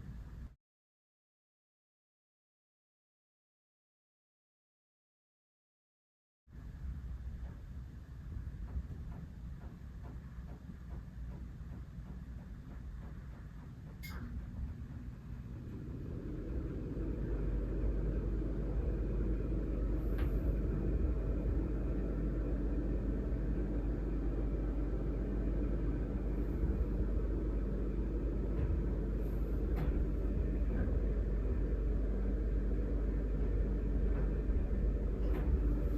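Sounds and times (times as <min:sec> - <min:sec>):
faint hum: 0:06.5 - 0:35.9
low rumble: 0:11.3 - 0:35.9.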